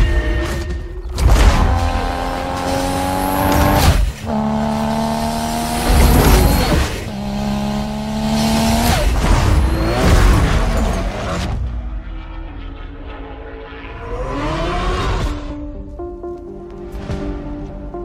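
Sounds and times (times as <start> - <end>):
car engine accelerating hard: 1.3 - 15.7.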